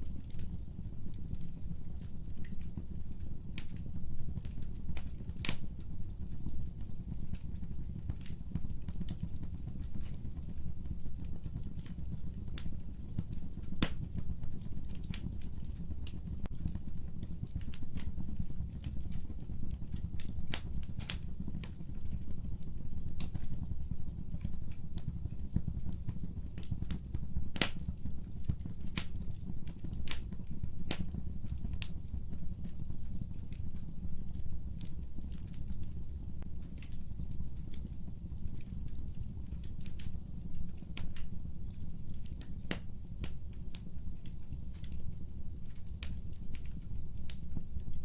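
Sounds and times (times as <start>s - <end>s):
fire crackling and popping: 0.0s - 48.0s
low rumble of flame: 0.0s - 48.0s.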